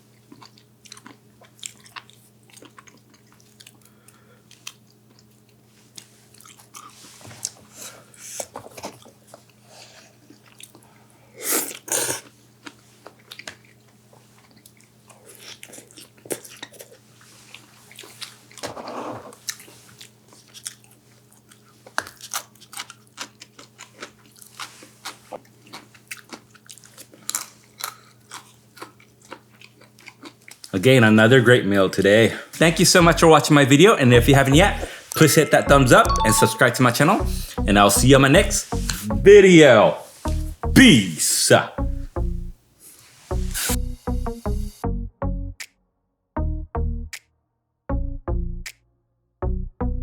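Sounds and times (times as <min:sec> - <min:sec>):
person chewing crunchy food: 0:00.0 - 0:30.7
wet mouth clicks: 0:38.7 - 0:39.2.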